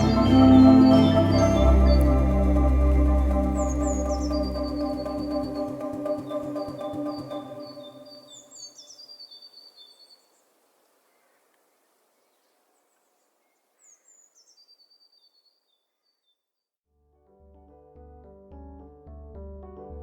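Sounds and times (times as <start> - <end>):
ambient organ-like music: 0.0 - 8.6
small bird chirping: 3.5 - 16.4.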